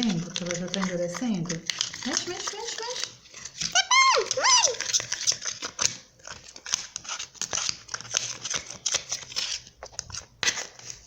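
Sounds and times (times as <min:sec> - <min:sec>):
spoon stirring slime in pan: 0:00.0 - 0:03.9.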